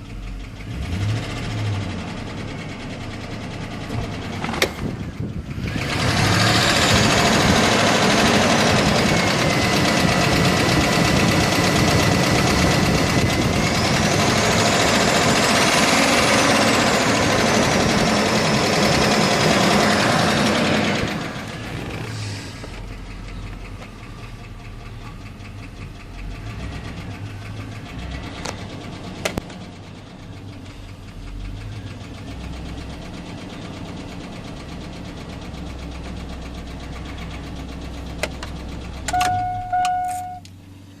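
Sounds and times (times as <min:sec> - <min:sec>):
car engine idling: 0:00.0 - 0:41.0
short beeps: 0:39.1 - 0:40.5.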